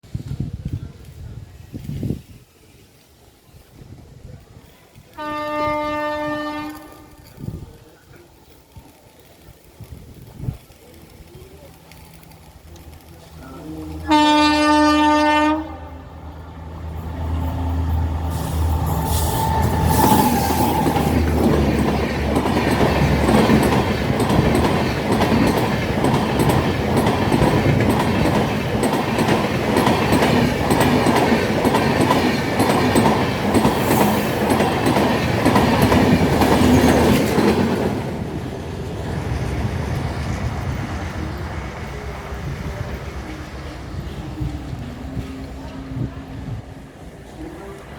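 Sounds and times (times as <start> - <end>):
train horn blast: 5.1 - 7.2, 14.0 - 16.1
train wheels clattering: 17.3 - 45.7.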